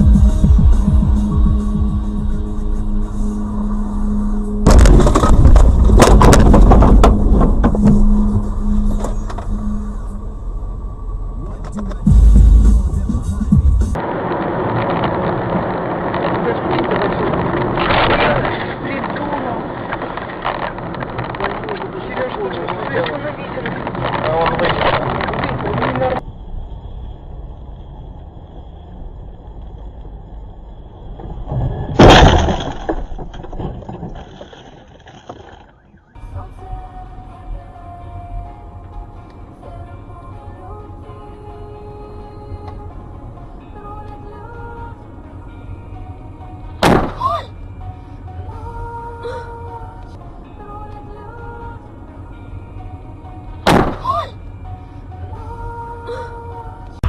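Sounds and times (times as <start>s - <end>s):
low engine hum: 0.0s - 34.1s, 35.7s - 57.0s
crunching and clattering impacts: 4.6s - 9.5s, 31.1s - 36.2s, 46.8s - 47.2s, 53.6s - 54.1s
car collision: 4.6s - 9.7s, 31.1s - 36.2s, 46.7s - 47.5s, 53.6s - 54.4s
clatter of small knocks: 31.2s - 35.9s.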